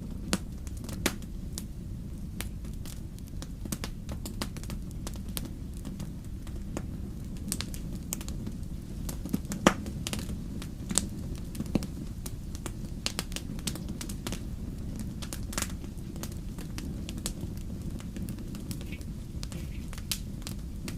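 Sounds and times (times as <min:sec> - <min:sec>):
low rumble of burning logs: 0:00.0 - 0:20.9
wood fire pops and snaps: 0:00.0 - 0:20.9.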